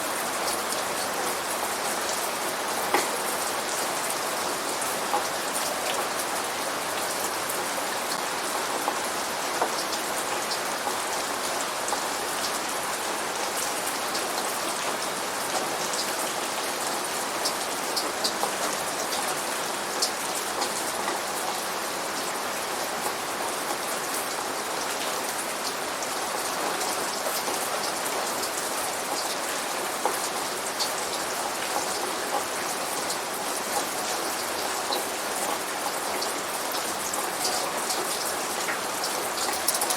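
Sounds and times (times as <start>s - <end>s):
rain falling: 0.0s - 39.9s
raindrops hitting a surface: 0.0s - 39.9s.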